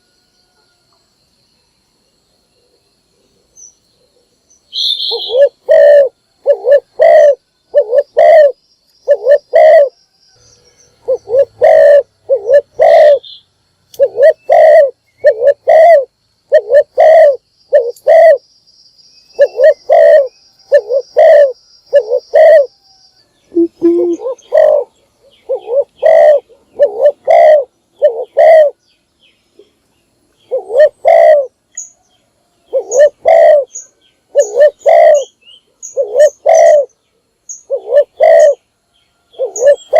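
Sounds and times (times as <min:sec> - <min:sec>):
small birds chirping: 0:02.5 - 0:39.9
dove cooing: 0:04.8 - 0:10.0, 0:11.0 - 0:13.4, 0:14.0 - 0:18.4, 0:19.4 - 0:22.8, 0:23.5 - 0:28.8, 0:30.4 - 0:31.5, 0:32.7 - 0:37.0, 0:37.6 - 0:38.6, 0:39.3 - 0:39.9.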